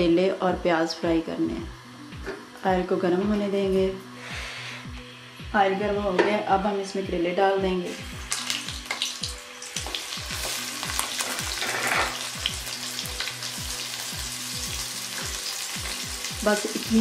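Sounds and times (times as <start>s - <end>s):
food frying in hot oil: 8.0s - 17.0s.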